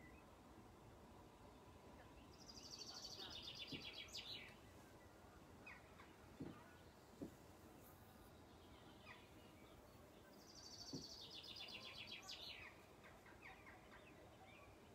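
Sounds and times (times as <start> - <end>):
faint outdoor ambience: 0.0 - 14.9
bird chirps: 2.2 - 7.1, 7.8 - 14.9
soft low knocks: 6.3 - 7.7.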